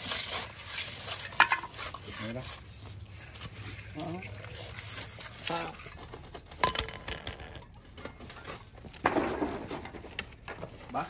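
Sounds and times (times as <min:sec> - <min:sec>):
rough scraping: 0:00.0 - 0:10.1.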